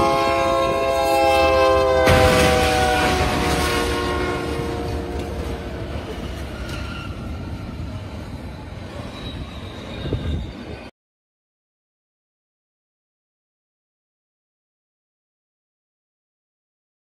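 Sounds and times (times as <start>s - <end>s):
train horn: 0.0s - 5.8s
freight train rumbling past: 0.0s - 10.9s.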